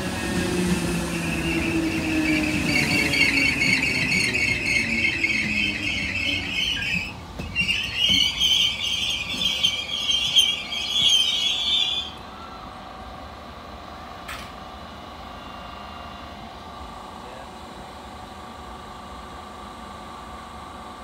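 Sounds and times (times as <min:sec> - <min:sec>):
train brakes squealing: 0:00.0 - 0:12.7, 0:15.2 - 0:16.4.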